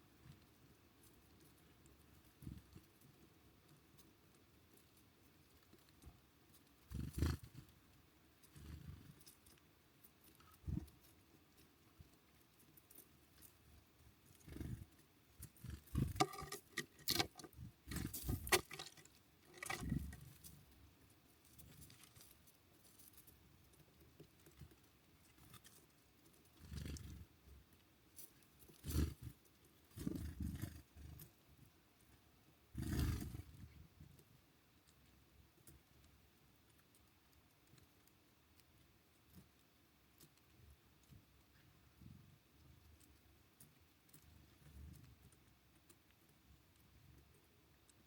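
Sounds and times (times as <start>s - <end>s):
birds knocking and scrabbling: 14.4s - 20.6s.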